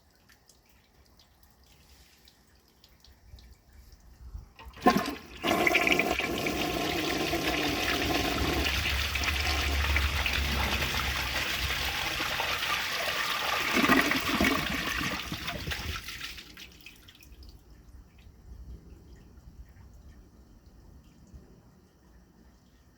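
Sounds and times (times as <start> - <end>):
toilet flush click: 4.6 - 15.8
toilet flushing rushing water: 4.6 - 16.7.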